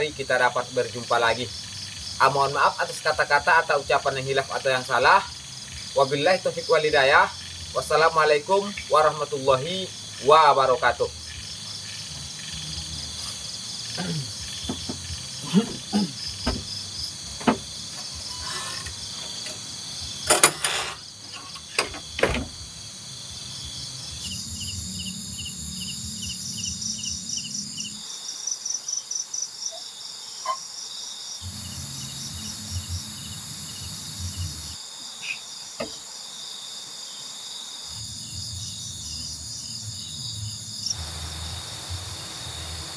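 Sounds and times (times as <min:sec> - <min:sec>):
crickets trilling: 0:00.0 - 0:42.9
insects pulsed chirps: 0:00.0 - 0:42.9
sharp knocks: 0:14.6 - 0:18.2, 0:35.8 - 0:36.0.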